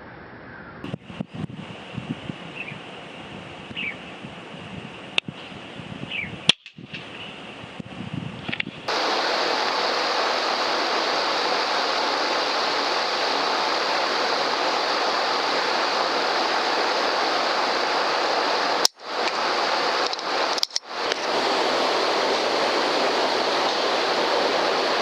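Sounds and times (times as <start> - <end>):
loud steady rushing noise: 0.0 - 25.0
sharp click: 6.5 - 7.1, 8.5 - 8.8, 20.0 - 21.2.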